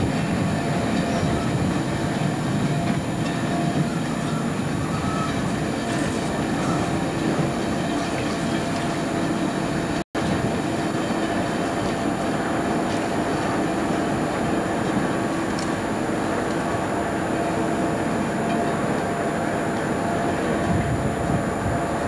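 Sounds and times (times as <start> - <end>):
train engine and running noise: 0.0 - 22.0.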